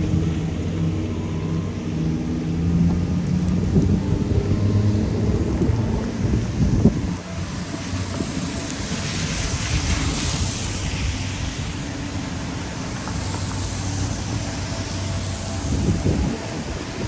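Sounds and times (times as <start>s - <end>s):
traffic rumble: 0.0s - 17.0s
steady rain hiss: 5.8s - 17.0s.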